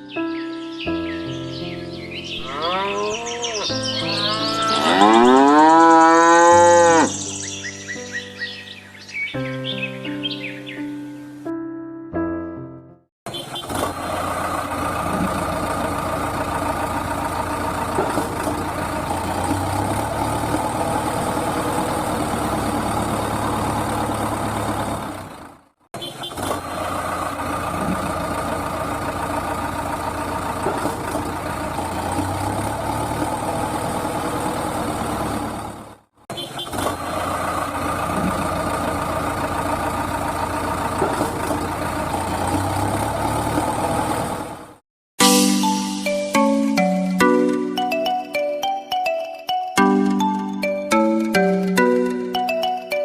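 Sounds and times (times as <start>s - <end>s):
tractor engine idling: 13.3s - 44.8s.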